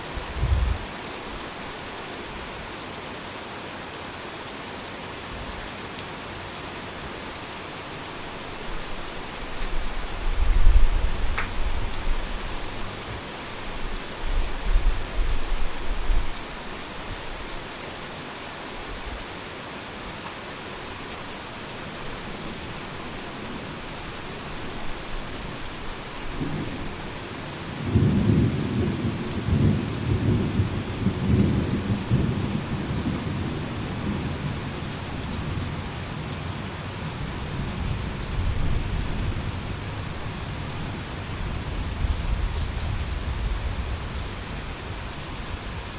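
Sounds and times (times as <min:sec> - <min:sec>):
heavy rain falling: 0:00.0 - 0:45.9
thunder rumbling: 0:00.1 - 0:00.9.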